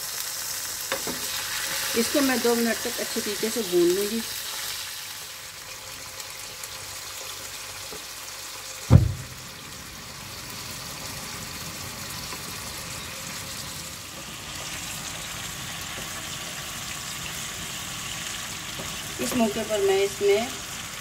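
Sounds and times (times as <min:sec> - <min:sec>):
meat sizzling in oil: 0:00.0 - 0:21.0
loud knock: 0:08.9 - 0:09.4.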